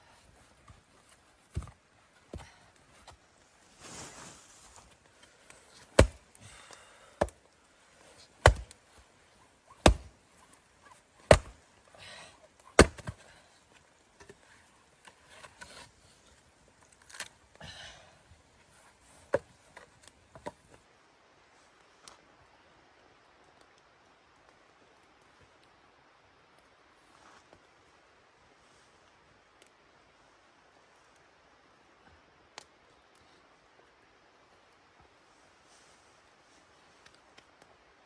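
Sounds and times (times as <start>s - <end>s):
axe chopping wood: 5.5s - 7.4s, 8.3s - 9.0s, 9.7s - 10.5s, 11.2s - 11.6s, 12.7s - 13.4s.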